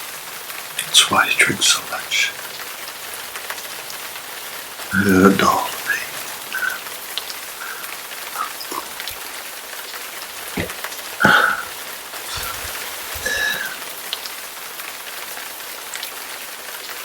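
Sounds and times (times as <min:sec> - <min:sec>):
rain falling: 0:00.0 - 0:17.0
drips tapping: 0:05.6 - 0:09.3, 0:10.4 - 0:14.2.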